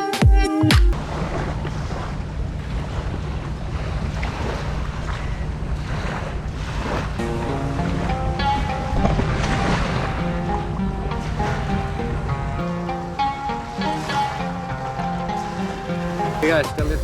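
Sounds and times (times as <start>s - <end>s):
music: 0.0s - 1.0s, 7.2s - 17.0s
sea water: 1.0s - 17.0s.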